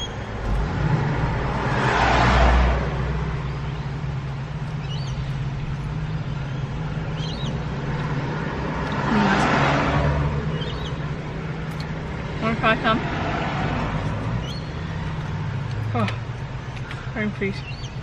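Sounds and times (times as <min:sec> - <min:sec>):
low engine hum: 0:00.0 - 0:18.0
car passing by: 0:00.4 - 0:03.3, 0:08.3 - 0:11.0, 0:12.3 - 0:15.2.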